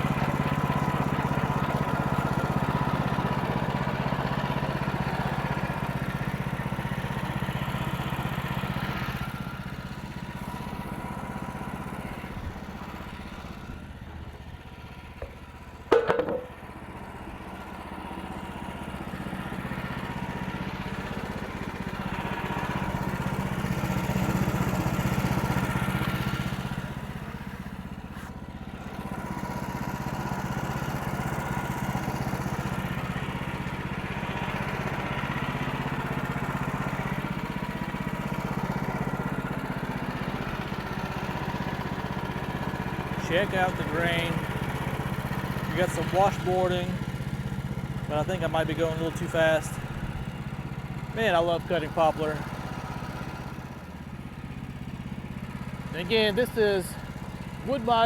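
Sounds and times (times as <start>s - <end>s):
gas engine running: 0.0s - 58.0s
sharp knock: 15.9s - 16.5s
band saw cutting log: 23.5s - 29.5s, 43.2s - 44.4s, 45.7s - 47.0s.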